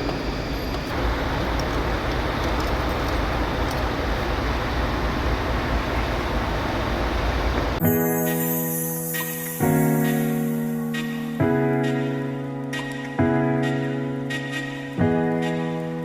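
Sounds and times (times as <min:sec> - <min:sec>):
vehicle rumble with hiss: 0:00.0 - 0:07.8
music: 0:07.8 - 0:16.0.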